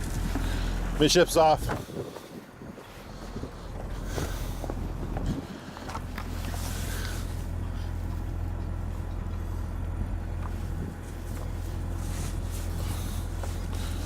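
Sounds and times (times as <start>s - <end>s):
wind gusts on microphone: 0.0s - 5.9s
boat engine low rumble: 0.0s - 14.0s.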